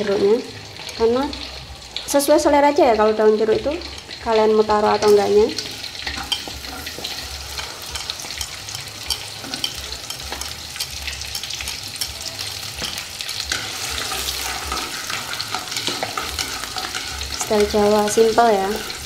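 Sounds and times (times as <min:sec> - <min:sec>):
aromatics sizzling in hot oil: 0:00.0 - 0:19.0
tongs stirring in a wok: 0:03.8 - 0:19.0.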